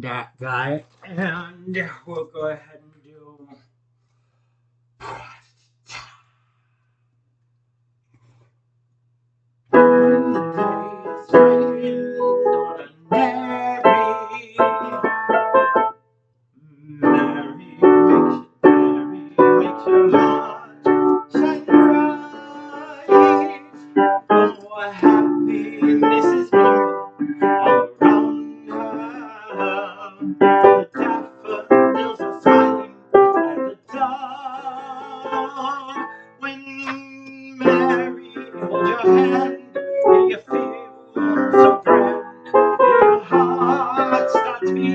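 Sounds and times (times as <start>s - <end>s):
piano chords: 9.7s - 16.0s, 17.0s - 36.9s, 37.5s - 44.9s.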